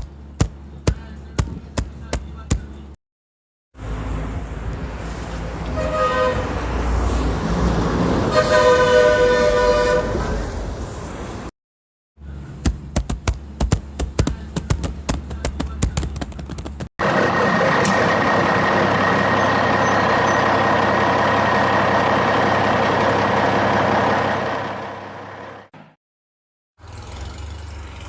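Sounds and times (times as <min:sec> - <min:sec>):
low engine hum: 0:00.0 - 0:03.0, 0:12.2 - 0:25.7
fast irregular clicking clatter: 0:12.7 - 0:16.9.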